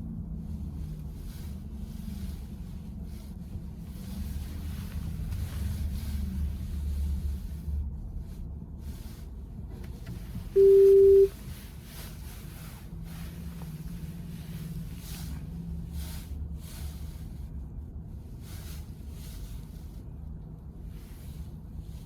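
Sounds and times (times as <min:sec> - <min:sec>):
road and tyre rumble: 0:00.0 - 0:22.0
electronic beep: 0:10.6 - 0:11.3.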